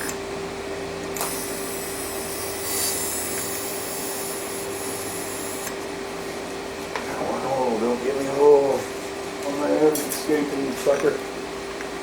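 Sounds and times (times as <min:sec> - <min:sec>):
welding hiss: 0:01.2 - 0:05.7.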